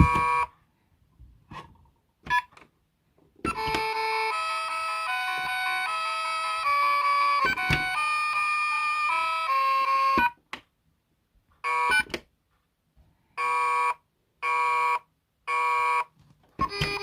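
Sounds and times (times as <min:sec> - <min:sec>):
alarm-like beeps: 0:00.0 - 0:00.5
electronic toy tune: 0:00.0 - 0:00.5, 0:03.5 - 0:10.4, 0:11.6 - 0:12.1, 0:13.4 - 0:17.0.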